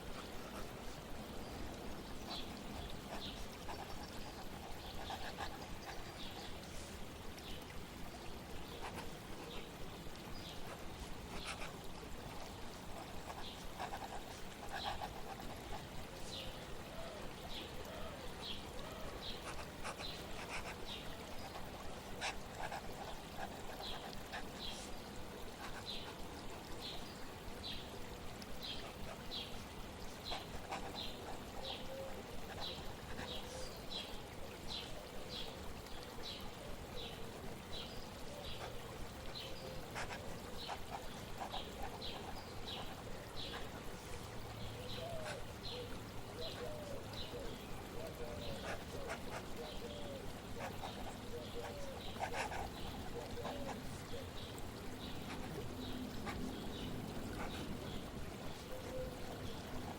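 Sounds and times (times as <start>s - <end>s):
flowing water: 0.0s - 59.9s.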